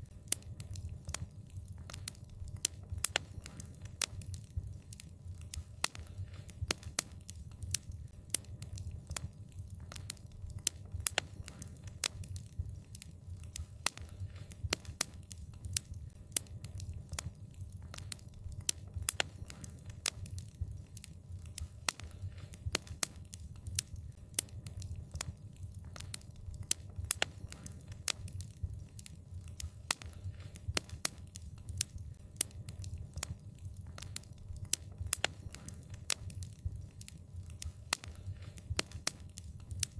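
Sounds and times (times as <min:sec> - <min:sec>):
burning wood crackling and popping: 0:00.0 - 0:39.9
low rumble of flames: 0:00.0 - 0:39.9.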